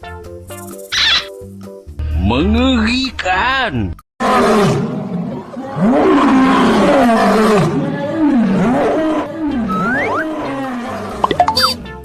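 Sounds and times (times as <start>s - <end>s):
large animal roaring: 4.2s - 11.2s.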